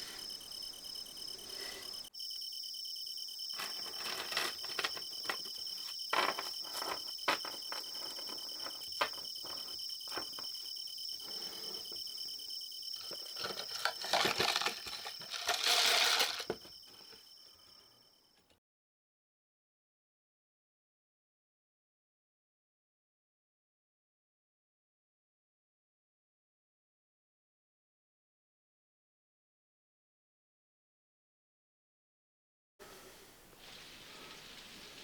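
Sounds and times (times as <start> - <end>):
crickets chirping: 0.0 - 18.6, 32.8 - 35.0
crinkling and rustling: 3.5 - 10.6, 13.0 - 17.1.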